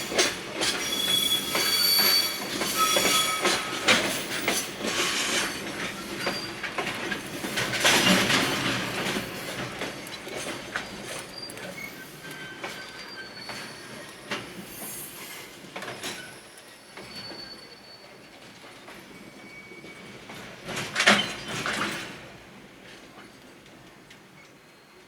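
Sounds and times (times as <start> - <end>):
high wheel or brake squeals: 0.0 - 6.7, 11.3 - 14.1, 16.2 - 18.3
freight train rolling: 0.0 - 25.0.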